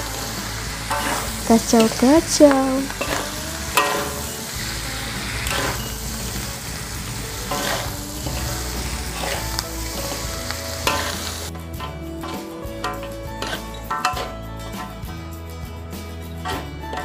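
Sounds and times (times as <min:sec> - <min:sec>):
food sizzling in a wok: 0:00.0 - 0:15.2
stirring scrape in a wok: 0:00.3 - 0:01.4, 0:02.9 - 0:12.0.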